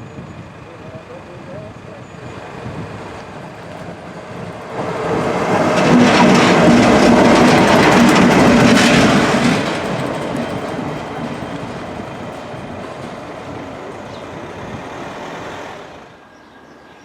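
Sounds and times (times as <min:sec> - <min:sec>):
train passing: 0:00.0 - 0:17.0
wheels clattering over rail joints: 0:03.0 - 0:16.1.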